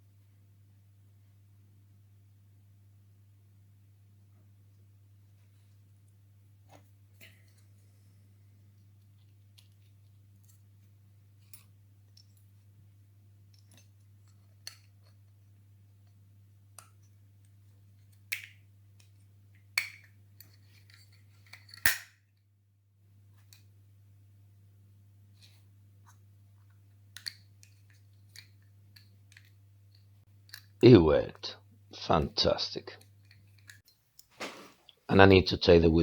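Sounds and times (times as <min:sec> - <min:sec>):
small plastic clicks and snaps: 0:27.1 - 0:30.8.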